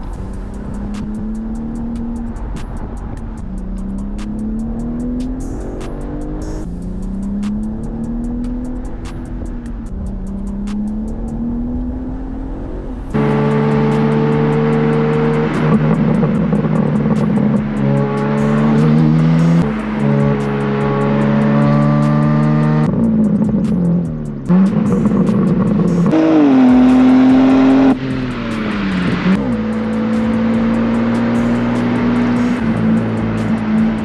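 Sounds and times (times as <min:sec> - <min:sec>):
car engine accelerating through gears: 0:00.0 - 0:34.0
music with steady beat: 0:00.0 - 0:34.0.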